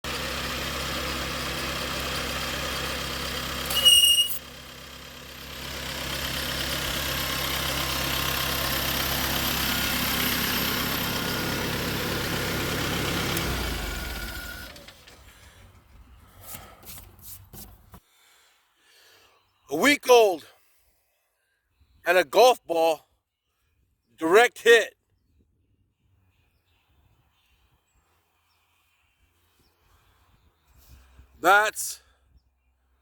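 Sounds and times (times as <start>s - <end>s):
stump grinder engine running: 0.1s - 3.8s, 4.4s - 15.6s.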